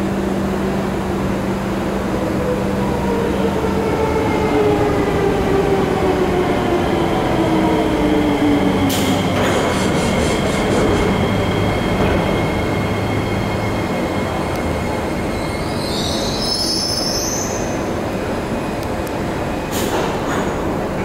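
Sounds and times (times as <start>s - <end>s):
train equipment humming: 0.0s - 21.0s
high wavering squeal: 8.4s - 18.8s.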